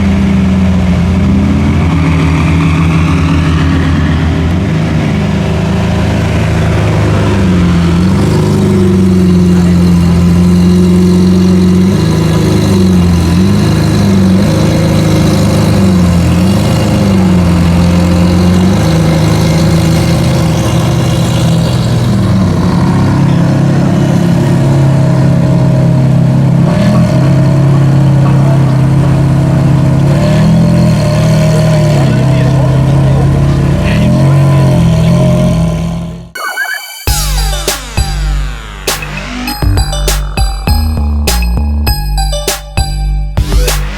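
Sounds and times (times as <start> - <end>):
car engine idling: 0.0 - 23.4.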